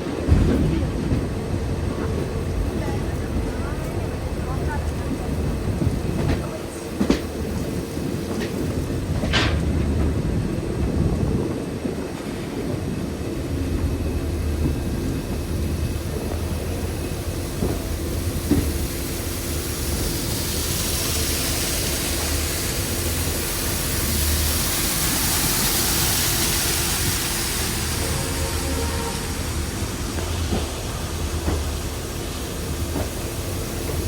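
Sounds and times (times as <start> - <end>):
train coaches rumbling: 0.0 - 34.0
hiss: 16.0 - 34.0.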